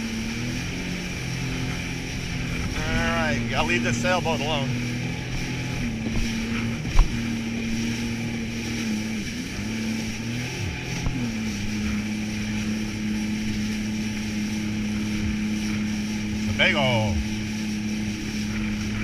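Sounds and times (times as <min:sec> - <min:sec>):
jet ski engine running: 0:00.0 - 0:19.0.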